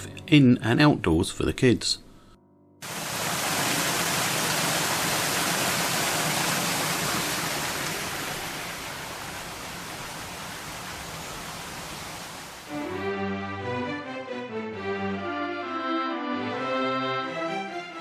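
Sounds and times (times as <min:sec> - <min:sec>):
rushing water: 0:02.8 - 0:12.9.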